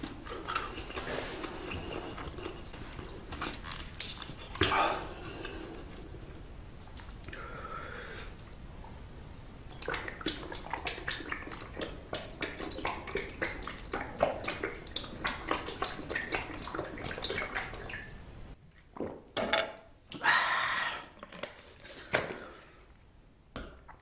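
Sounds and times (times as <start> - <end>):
wet mouth clicks and chewing: 0.0 - 4.7, 9.7 - 17.8.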